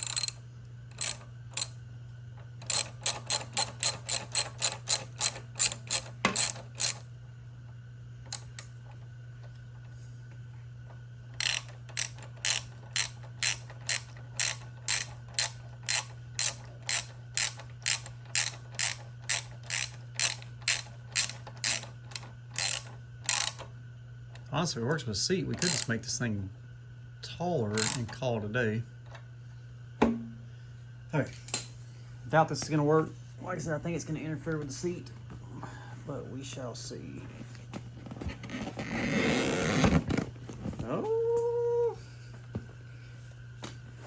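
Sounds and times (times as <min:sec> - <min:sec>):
ratchet wrench clicking: 0:00.0 - 0:01.7, 0:02.6 - 0:07.0, 0:11.4 - 0:23.6, 0:25.6 - 0:25.9, 0:27.8 - 0:28.0.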